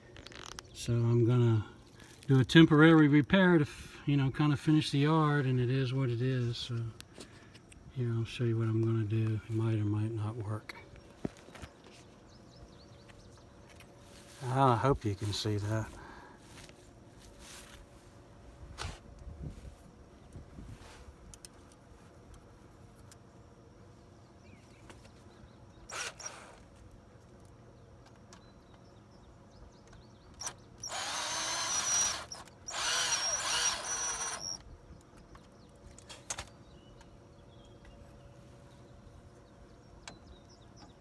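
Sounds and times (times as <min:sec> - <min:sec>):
power drill whining: 0:25.9 - 0:26.6, 0:30.4 - 0:34.6.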